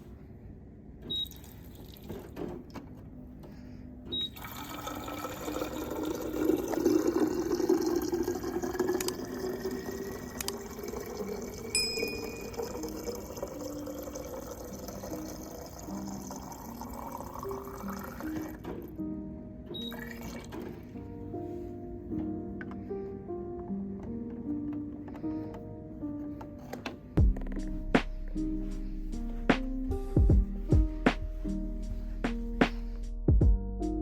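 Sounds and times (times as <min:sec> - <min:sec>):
tap water filling container: 0:04.4 - 0:18.9, 0:19.9 - 0:20.8.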